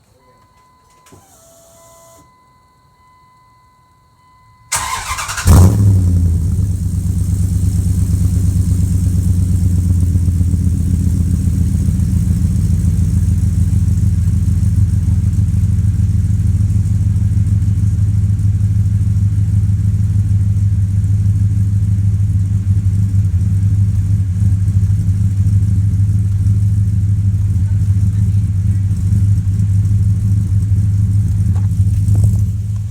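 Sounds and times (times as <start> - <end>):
engine cranking and idling: 0.0 - 2.4, 4.7 - 32.9
faint electronic tone: 0.0 - 4.7.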